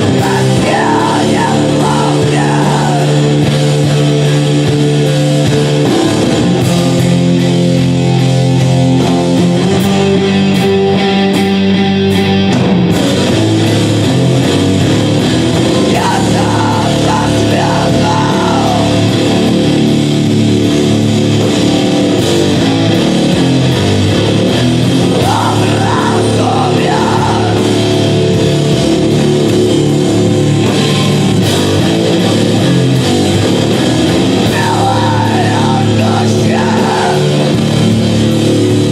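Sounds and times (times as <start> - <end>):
person singing: 0.0 - 3.5, 15.9 - 19.3, 25.2 - 27.9, 34.4 - 37.6
drums: 0.0 - 38.9
electric guitar: 0.0 - 38.9.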